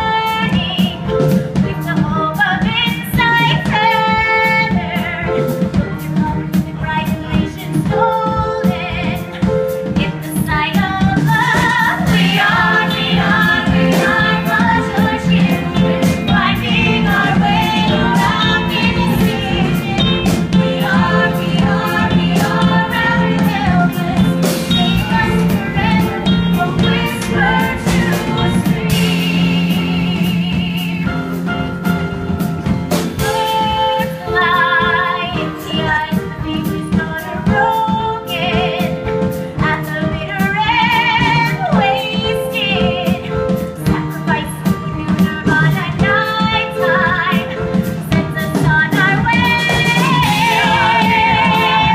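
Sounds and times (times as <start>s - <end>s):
woman singing: 0.0s - 31.4s, 33.2s - 51.9s
instrumental accompaniment: 0.0s - 51.9s.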